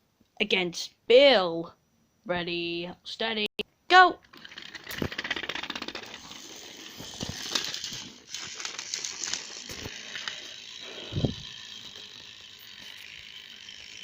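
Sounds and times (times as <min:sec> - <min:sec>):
toy train clicks and rattles: 0:04.2 - 0:14.0.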